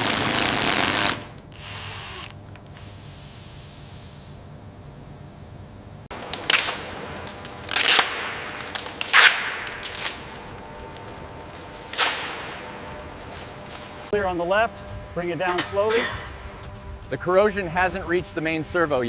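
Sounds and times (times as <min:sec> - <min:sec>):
sharp cracks with hiss: 0:06.2 - 0:10.4, 0:11.9 - 0:12.6.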